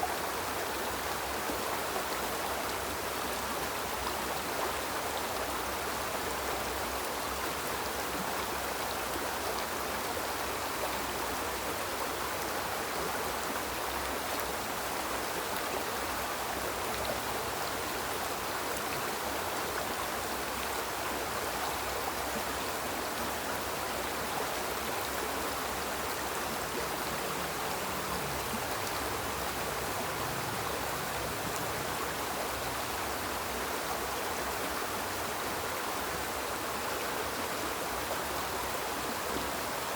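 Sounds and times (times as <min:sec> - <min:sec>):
river flowing over rocks: 0:00.0 - 0:39.9.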